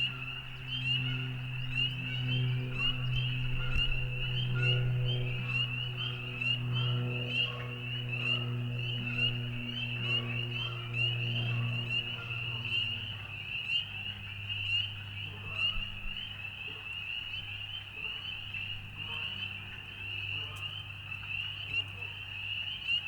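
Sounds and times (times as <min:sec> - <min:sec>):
low steady hum: 0:00.0 - 0:22.0
frogs trilling: 0:00.0 - 0:23.0.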